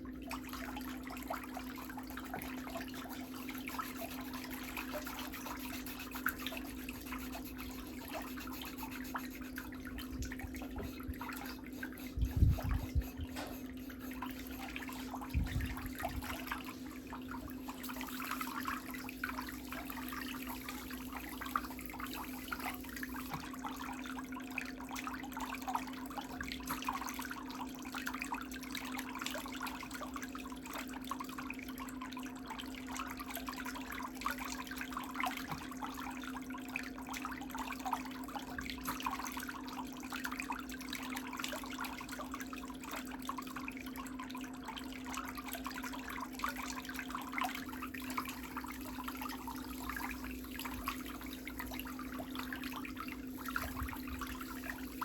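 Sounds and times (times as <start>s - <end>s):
steady low hum: 0.0s - 24.7s, 45.8s - 55.0s.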